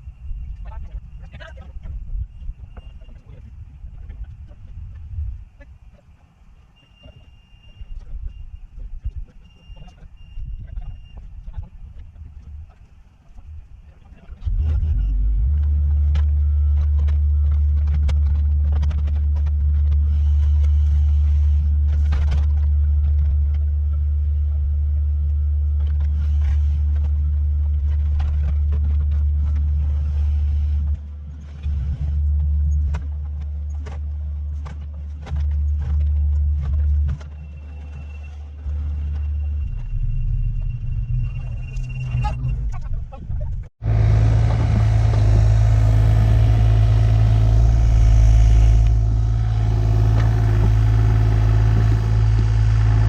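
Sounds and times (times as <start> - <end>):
excavator diesel engine under load: 43.8 - 53.0.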